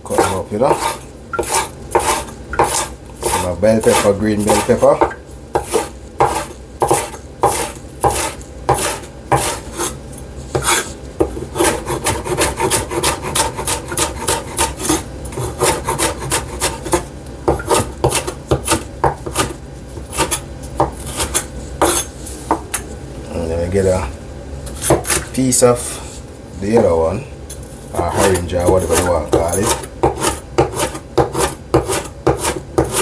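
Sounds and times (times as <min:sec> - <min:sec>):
knife chopping on cutting board: 0:00.1 - 0:09.9, 0:10.5 - 0:22.7, 0:24.8 - 0:25.3, 0:28.1 - 0:33.0.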